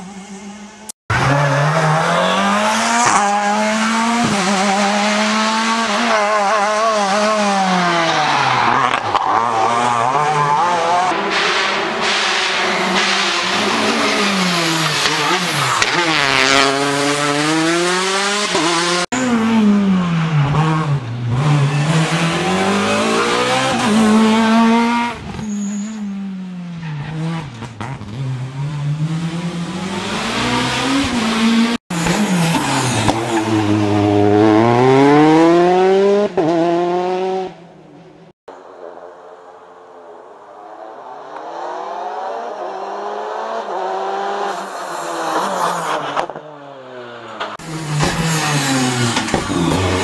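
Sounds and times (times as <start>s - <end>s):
rally car engines revving: 0.0s - 37.8s, 40.8s - 50.0s
tyre squeal: 25.2s - 26.1s.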